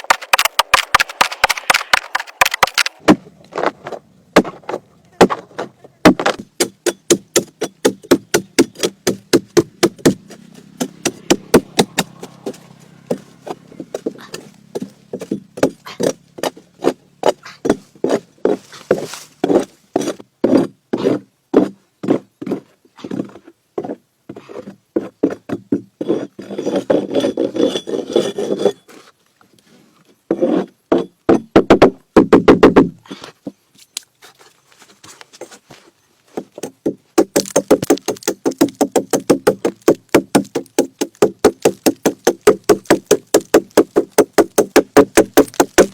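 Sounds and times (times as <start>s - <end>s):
hand tool striking wood: 0.0s - 3.7s, 4.4s - 20.7s, 30.3s - 33.0s, 36.4s - 45.9s
scraping on wood: 0.0s - 31.1s, 34.2s - 45.9s.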